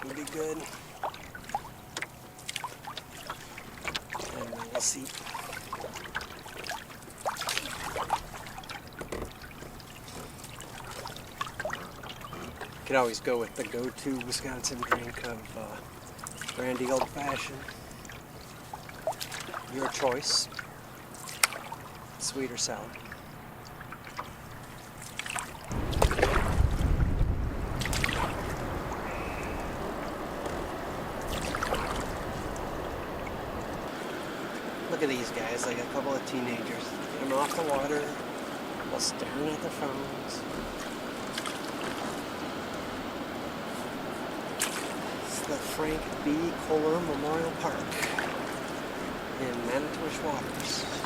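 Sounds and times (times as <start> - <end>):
water dripping off paddle: 0.0 - 27.0, 27.7 - 35.8, 36.6 - 43.0, 44.4 - 51.0
paddle splashes: 0.0 - 51.0
knocks on canoe: 8.9 - 10.4
wind rumble on microphone: 25.6 - 34.0.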